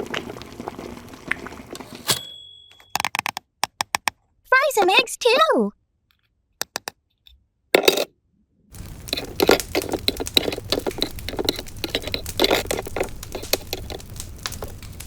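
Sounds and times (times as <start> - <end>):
toy kitchen pieces clinking: 7.8 - 8.1, 8.8 - 14.8.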